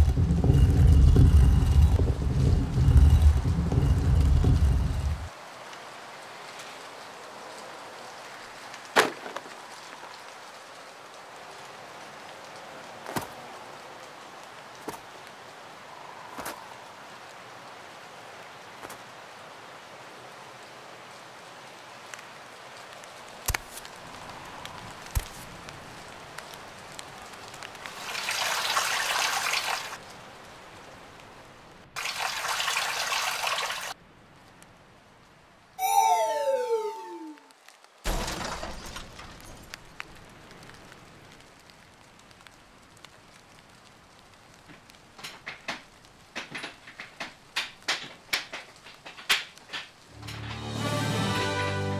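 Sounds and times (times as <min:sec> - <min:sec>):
water pouring onto ground: 0:27.8 - 0:30.0, 0:32.0 - 0:34.0.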